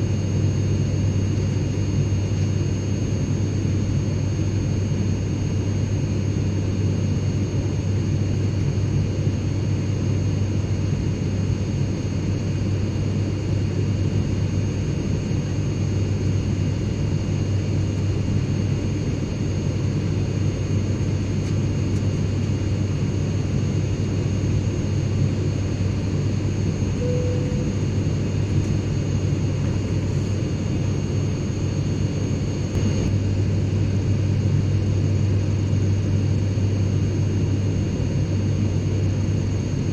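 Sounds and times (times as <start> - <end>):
airplane cabin rumble: 12.0 - 39.9
faint high whine: 20.3 - 39.2.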